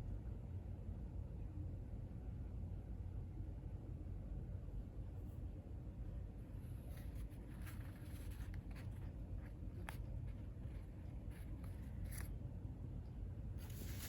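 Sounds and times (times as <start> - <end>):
faint clicks and rustles: 6.4 - 12.4.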